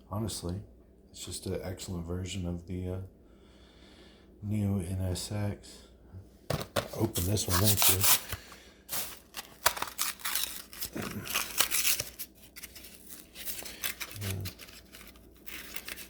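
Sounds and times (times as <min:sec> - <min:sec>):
stiff plastic crinkling: 0:06.9 - 0:16.0
cardboard ripping: 0:07.0 - 0:16.0.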